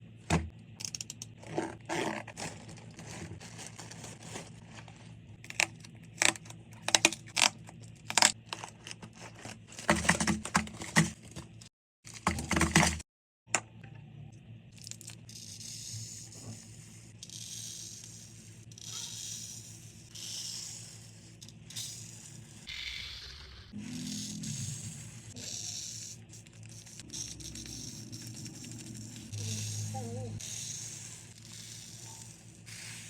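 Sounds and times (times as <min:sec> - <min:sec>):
packaging crinkling and tearing: 0:01.5 - 0:10.8.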